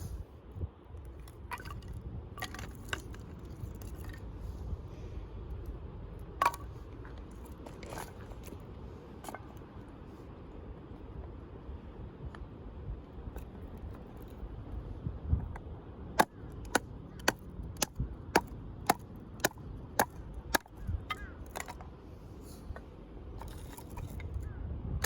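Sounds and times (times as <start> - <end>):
firewood splitting knocks: 16.2 - 21.8.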